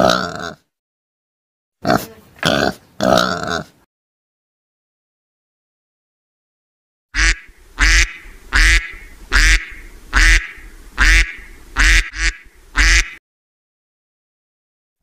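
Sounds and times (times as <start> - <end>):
duck quacking: 7.2 - 13.2.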